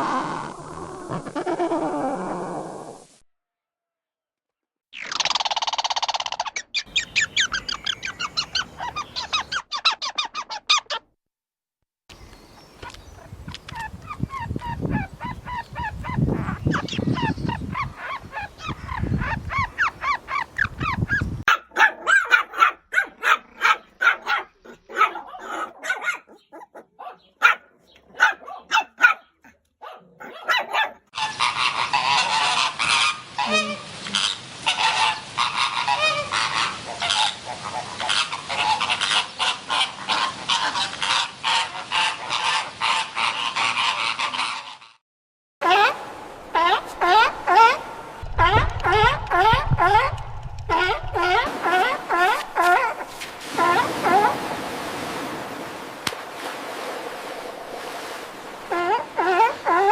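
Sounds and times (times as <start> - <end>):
honking goose-like bird calls: 45.6 - 54.5.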